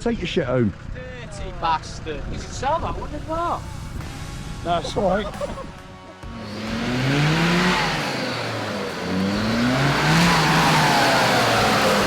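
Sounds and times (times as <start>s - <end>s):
engine revving hard: 6.2s - 12.0s.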